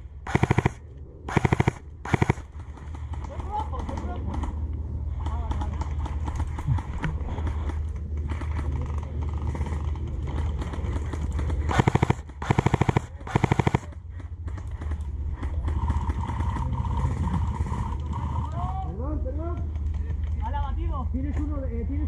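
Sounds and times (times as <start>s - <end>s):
airsoft gun full-auto bursts: 0.0s - 3.0s, 10.6s - 14.0s.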